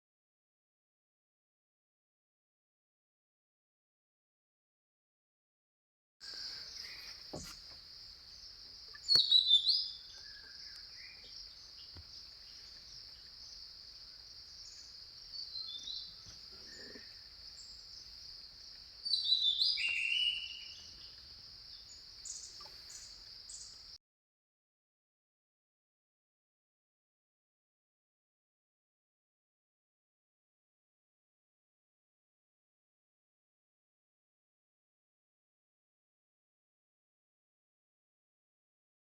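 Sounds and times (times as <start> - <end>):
bird calls: 6.2 - 24.0
insect drone: 6.2 - 24.0.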